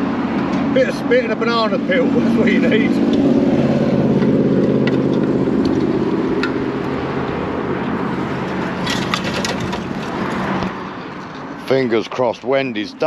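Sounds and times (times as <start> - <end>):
two-stroke moped engine running: 0.0 - 10.3.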